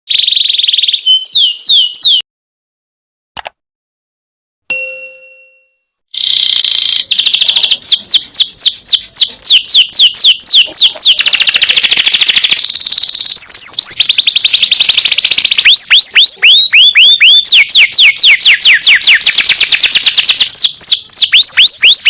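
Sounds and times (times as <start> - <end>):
canary singing: 0.1 - 2.2, 6.2 - 22.0
bell-like ding: 4.7 - 5.9.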